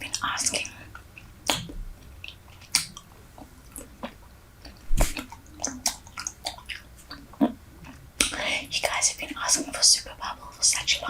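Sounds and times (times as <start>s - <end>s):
gum chewing smacks: 0.1s - 8.5s.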